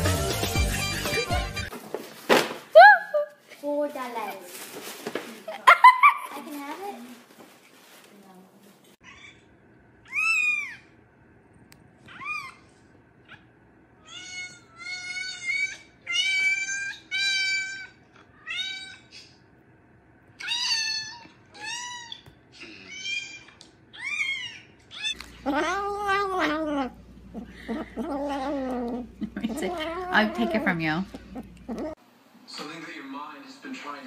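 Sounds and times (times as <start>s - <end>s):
cat yowling: 10.0s - 10.9s, 12.1s - 12.7s, 14.0s - 19.1s, 20.4s - 32.0s
cat meowing: 14.0s - 19.1s, 20.4s - 32.0s.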